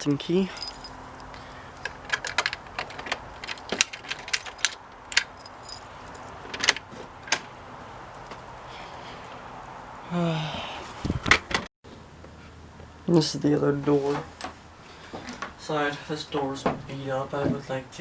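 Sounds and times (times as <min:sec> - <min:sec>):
keys jangling: 0:00.5 - 0:01.4, 0:02.1 - 0:06.4.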